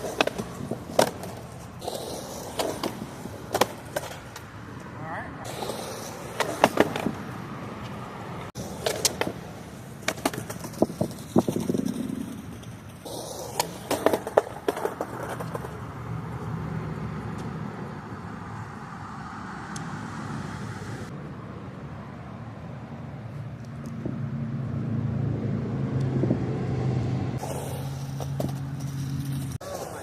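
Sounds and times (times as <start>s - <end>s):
skateboard clacks and slaps: 0.0s - 4.5s, 5.5s - 15.9s, 27.4s - 30.0s
skateboard wheels rolling: 0.0s - 21.1s, 27.4s - 30.0s.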